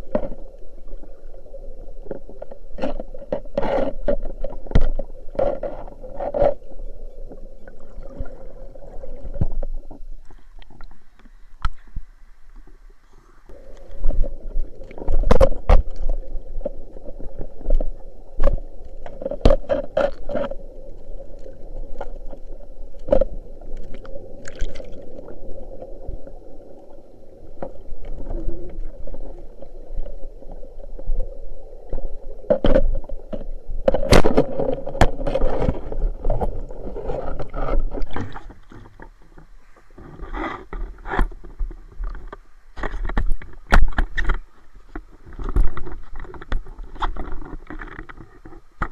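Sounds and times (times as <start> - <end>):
water sloshing and splashing: 0.0 - 12.0, 13.5 - 48.9.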